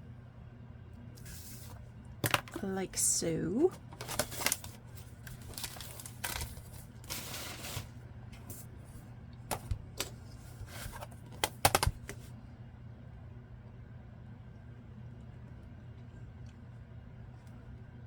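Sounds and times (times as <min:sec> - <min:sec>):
steady low hum: 0:00.0 - 0:18.0
paper rustling: 0:03.8 - 0:08.7.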